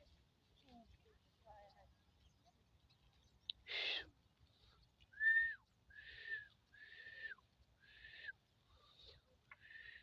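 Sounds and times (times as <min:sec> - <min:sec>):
breathy whistled notes: 0:05.1 - 0:08.4.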